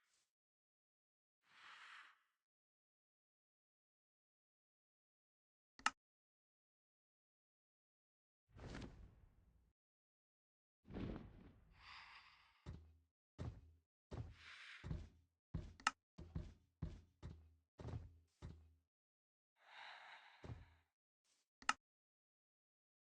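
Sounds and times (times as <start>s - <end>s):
knocks and thuds: 12.7s - 18.6s.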